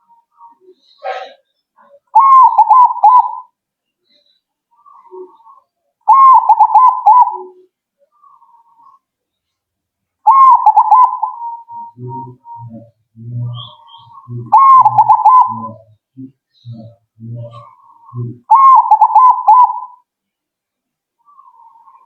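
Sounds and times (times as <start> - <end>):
dove cooing: 0.0 - 3.6, 4.8 - 9.0, 10.2 - 20.1.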